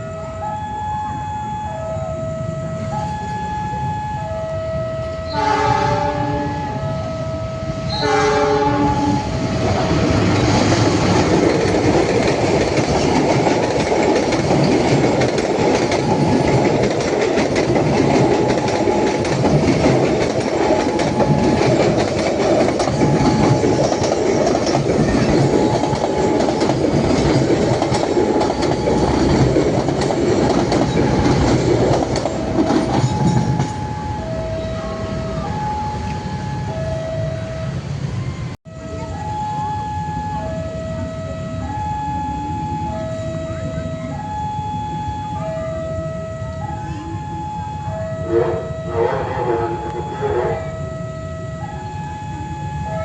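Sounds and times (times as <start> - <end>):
two-note alarm: 0.0 - 10.2, 17.9 - 29.9, 30.6 - 53.0
train wheels clattering over rails: 9.2 - 34.0.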